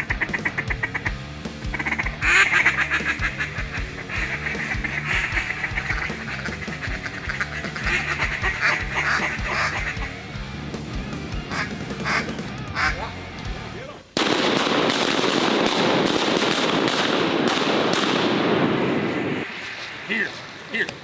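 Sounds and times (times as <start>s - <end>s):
duck quacking: 0.0s - 10.4s, 11.4s - 13.2s
background music with bass: 0.0s - 14.2s.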